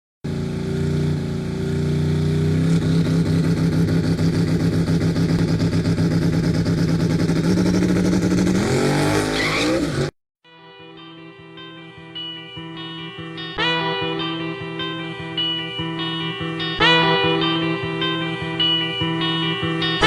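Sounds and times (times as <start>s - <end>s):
car engine running and revving: 0.3s - 10.1s.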